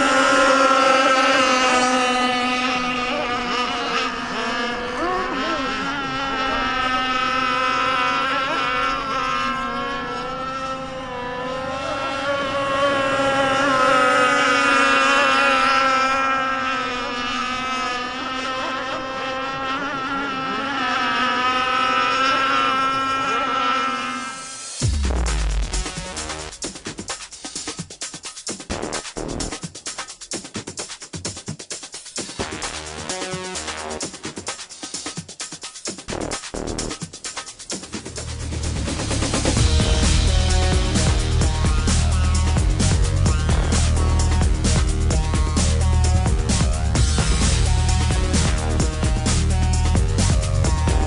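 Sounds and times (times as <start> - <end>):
model boat engine whining: 0.0 - 24.8, 38.1 - 51.0.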